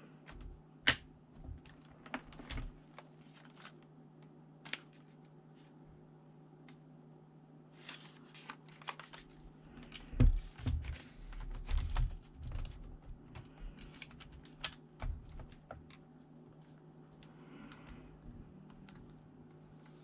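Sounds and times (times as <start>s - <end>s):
laptop plastic parts clicking: 10.9s - 16.0s.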